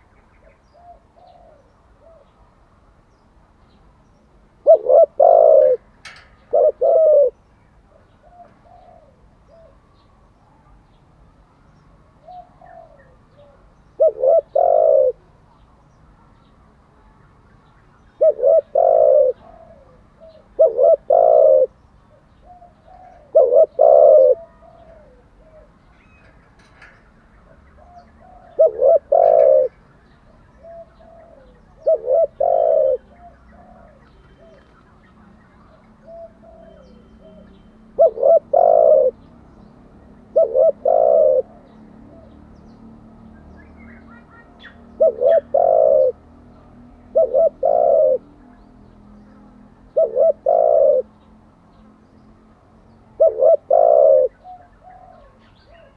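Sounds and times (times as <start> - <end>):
dove cooing: 0.7 - 2.4, 4.6 - 10.0, 12.2 - 15.3, 18.2 - 39.4, 40.2 - 42.5, 43.9 - 48.4, 49.9 - 51.2, 53.1 - 55.9.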